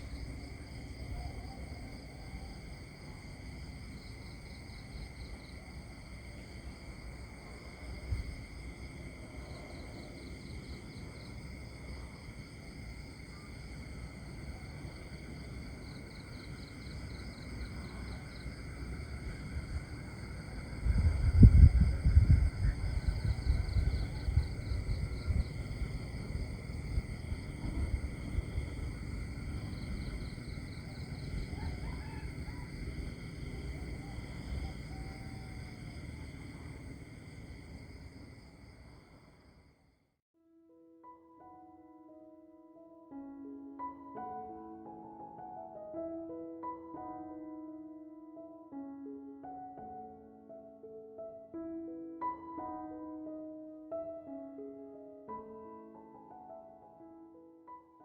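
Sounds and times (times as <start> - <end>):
low background rumble: 0.0 - 39.2
insects trilling: 0.0 - 39.7.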